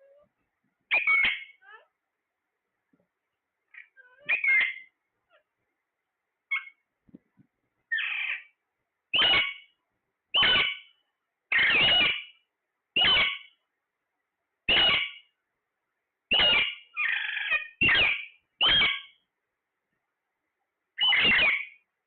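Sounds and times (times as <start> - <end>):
parrot chirping and squawking: 0.9 - 1.9, 3.7 - 5.5, 6.5 - 6.8, 7.9 - 12.4, 13.0 - 13.6, 14.7 - 15.3, 16.3 - 19.2, 21.0 - 21.9.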